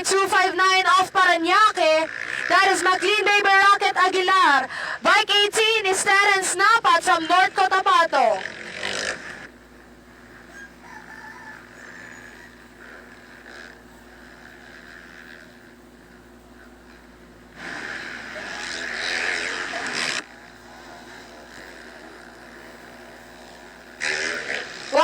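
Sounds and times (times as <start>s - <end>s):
dirt bike engines droning: 0.0s - 25.0s
dirt bike passing loudly: 7.6s - 9.5s, 10.4s - 25.0s.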